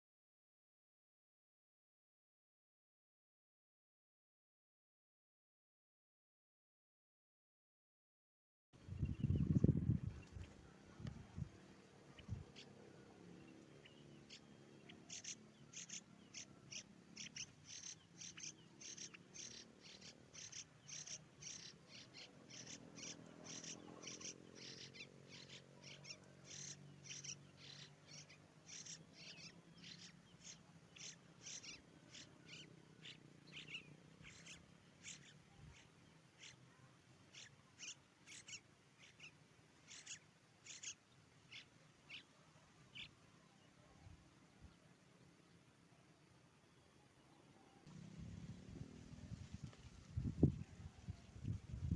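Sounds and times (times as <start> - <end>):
faint high bird chirps: 8.8 - 45.7.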